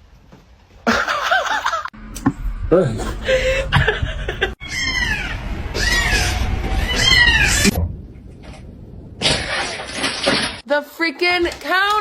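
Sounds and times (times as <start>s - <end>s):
cat meowing: 4.6s - 7.8s.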